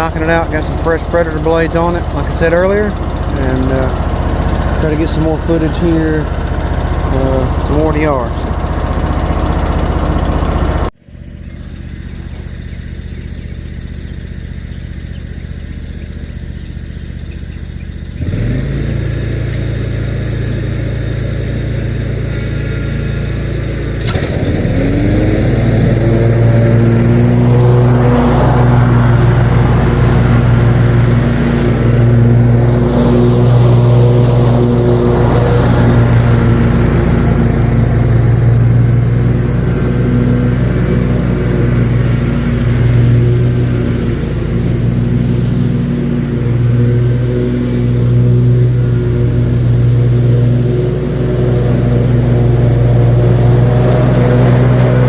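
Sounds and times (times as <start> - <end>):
riding lawn mower engine: 0.0 - 55.0.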